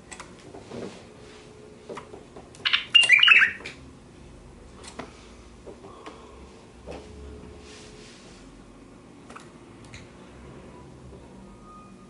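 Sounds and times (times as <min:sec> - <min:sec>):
bulbul calls: 0:02.6 - 0:03.6.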